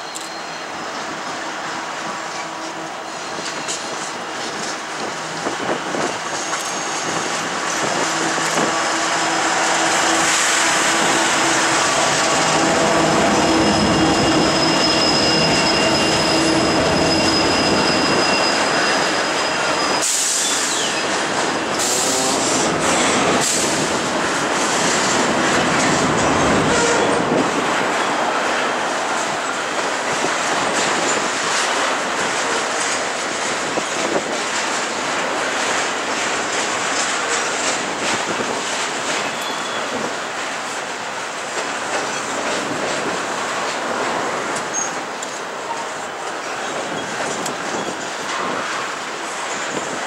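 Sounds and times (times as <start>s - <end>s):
diesel locomotives: 0.0s - 50.0s
train wheels on rails: 0.0s - 50.0s
high-pitched wheel squeal: 11.0s - 23.9s, 25.8s - 27.4s, 39.2s - 40.0s.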